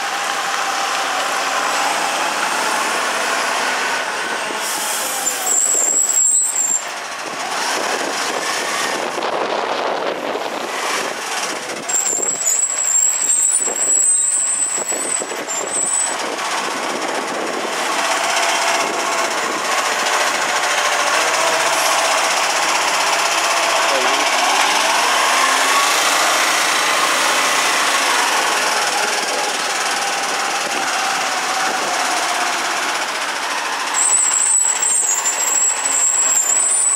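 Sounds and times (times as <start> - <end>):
diesel engine running: 0.0 - 36.9
high thin squeal: 4.6 - 6.9, 11.9 - 16.2, 33.9 - 36.9.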